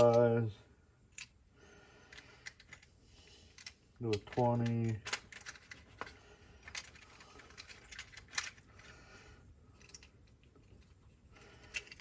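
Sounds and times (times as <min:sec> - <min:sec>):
plastic fuses clicking and rattling: 0:02.1 - 0:02.9, 0:03.5 - 0:09.0, 0:09.7 - 0:12.0.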